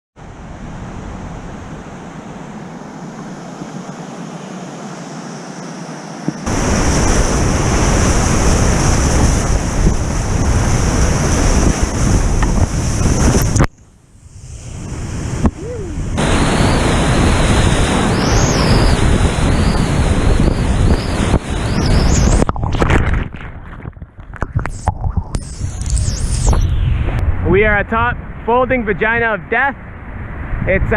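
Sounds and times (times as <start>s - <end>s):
river rapids roaring: 0.3s - 13.4s, 15.2s - 21.8s.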